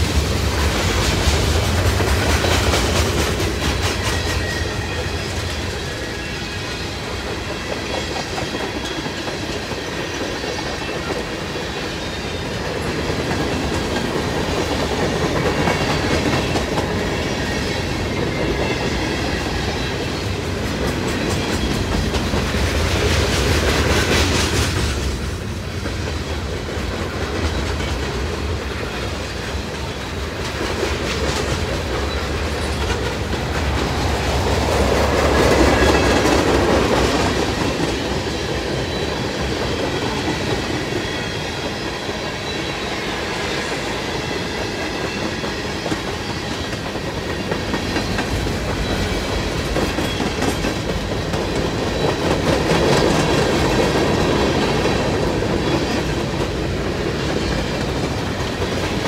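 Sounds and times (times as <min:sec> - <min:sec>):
clickety-clack over rail joints: 0:00.0 - 0:59.0
freight train wheels rumbling: 0:00.0 - 0:59.0.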